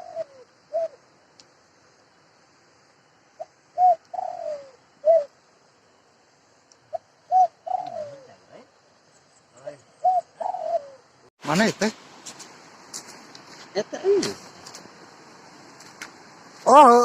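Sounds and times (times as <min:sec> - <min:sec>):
dove cooing: 0:00.0 - 0:01.0, 0:03.4 - 0:05.3, 0:06.9 - 0:08.5, 0:09.9 - 0:11.1.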